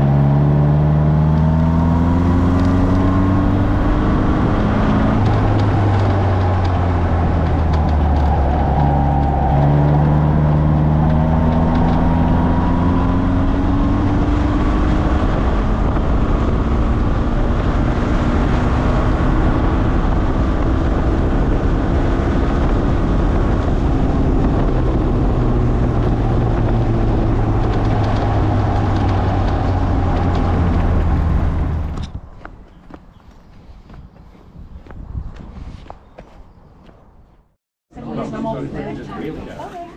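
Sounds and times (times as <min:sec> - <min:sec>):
wind and road noise: 0:00.0 - 0:39.9
sports car engine running hard: 0:09.4 - 0:32.0.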